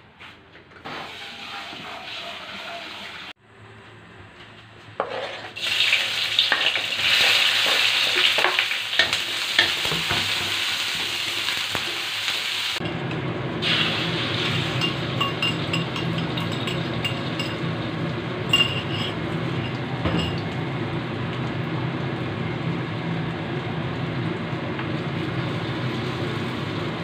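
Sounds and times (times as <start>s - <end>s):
wooden spatula scraping a pan: 0.8s - 3.3s, 5.0s - 5.6s
onion and chilies sizzling in oil: 0.9s - 3.4s, 5.0s - 27.0s.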